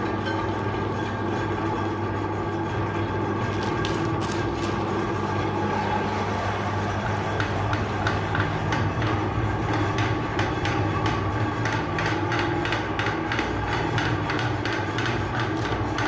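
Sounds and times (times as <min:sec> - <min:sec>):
meat grinder motor humming: 0:00.0 - 0:16.0
food cracking in grinder: 0:03.2 - 0:05.5, 0:13.2 - 0:16.0.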